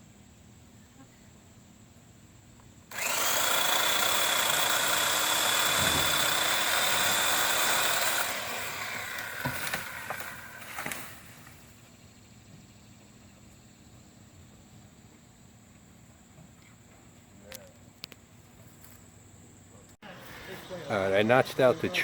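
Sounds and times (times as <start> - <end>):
electric chainsaw whining: 2.9 - 11.7.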